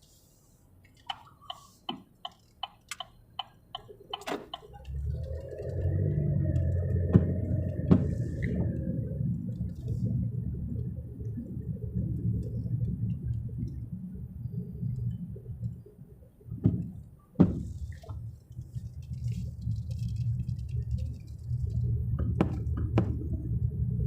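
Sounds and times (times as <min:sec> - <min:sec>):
car interior rumble: 0:00.0 - 0:24.0
sharp knocks: 0:16.6 - 0:17.7.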